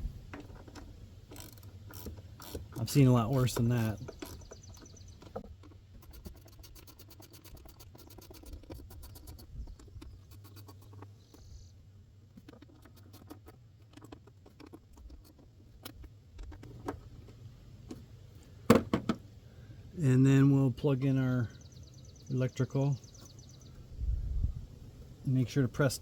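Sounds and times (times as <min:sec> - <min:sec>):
hand tools clicking and scratching: 0:00.2 - 0:11.6, 0:12.3 - 0:18.0.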